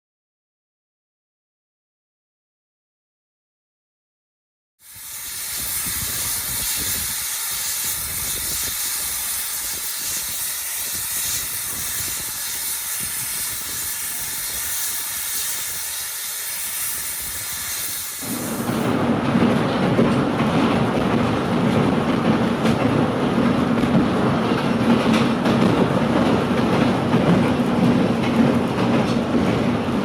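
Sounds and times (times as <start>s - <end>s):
steam locomotive hissing: 4.8s - 19.1s.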